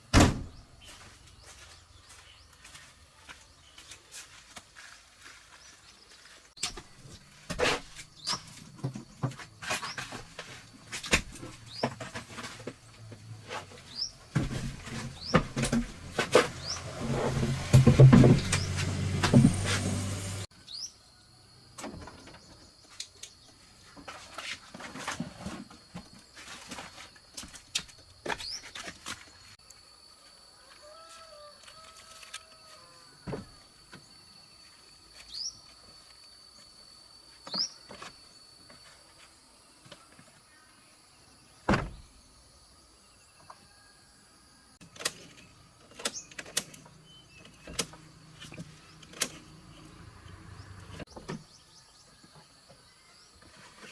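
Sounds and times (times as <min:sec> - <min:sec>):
thump: 0:00.1 - 0:00.6, 0:17.7 - 0:18.6, 0:19.2 - 0:19.9, 0:41.7 - 0:42.1.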